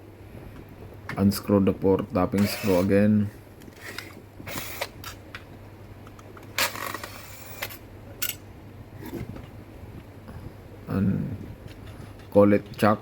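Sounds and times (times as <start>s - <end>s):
tool clicks and clinks on metal: 6.6s - 8.4s.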